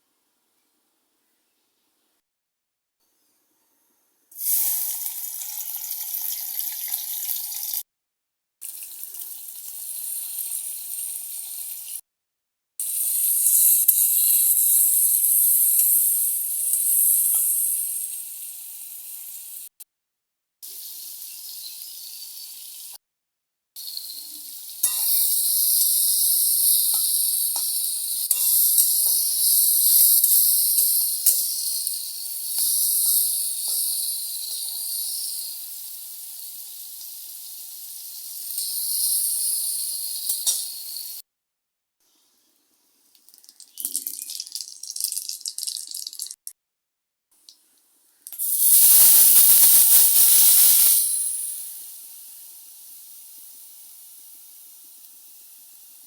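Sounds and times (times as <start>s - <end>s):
food sizzling in hot oil: 4.3s - 7.8s, 8.6s - 12.0s, 12.8s - 19.7s, 20.6s - 23.0s, 23.8s - 41.2s, 43.4s - 46.4s, 48.3s - 56.0s
faint utensil ticks: 16.7s - 17.6s, 24.8s - 32.0s, 40.3s - 40.8s, 48.2s - 48.4s.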